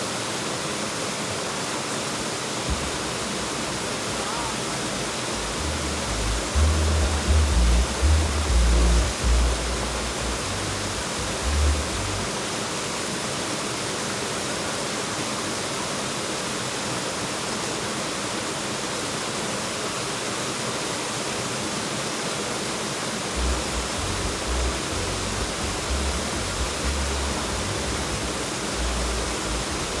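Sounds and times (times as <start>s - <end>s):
flowing water rushing: 0.0s - 30.0s
low rumbling buffets: 2.7s - 12.3s, 23.4s - 30.0s.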